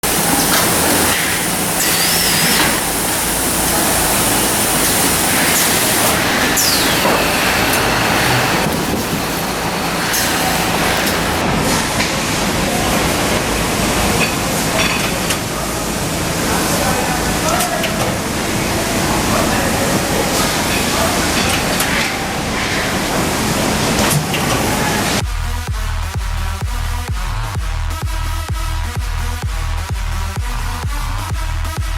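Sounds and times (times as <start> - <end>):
packing machinery running: 0.0 - 11.4.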